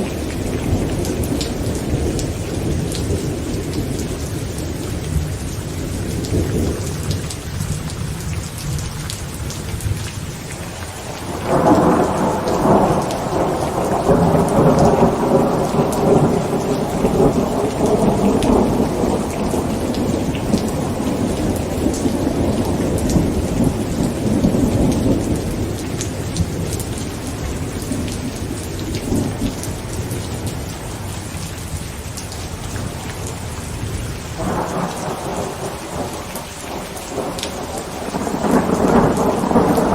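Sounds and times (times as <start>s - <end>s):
heavy rain on a tent: 0.0s - 39.9s
rolling thunder: 11.0s - 39.9s.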